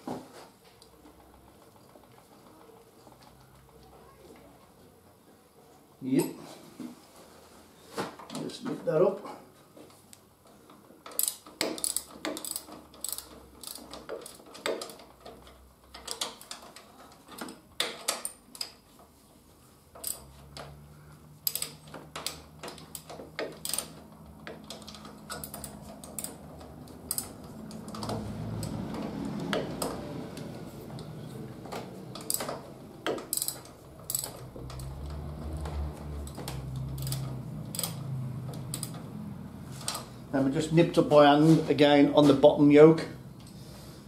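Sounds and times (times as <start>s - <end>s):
scraping rustling noise: 6.4s - 8.8s, 41.0s - 42.6s
metal tools clicking and knocking: 11.0s - 18.8s, 19.9s - 20.8s, 21.4s - 30.0s, 31.7s - 39.1s.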